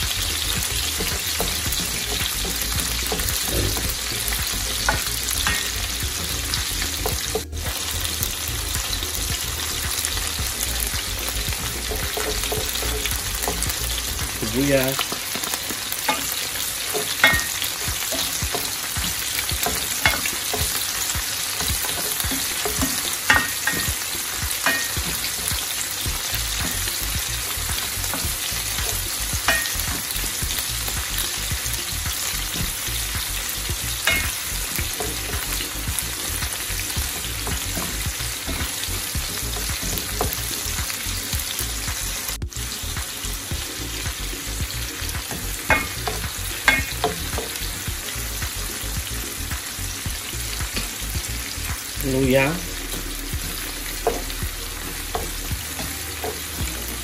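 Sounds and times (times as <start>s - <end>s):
food sizzling in oil: 0.0s - 57.0s
spatula scraping and knocking pot: 15.0s - 25.8s.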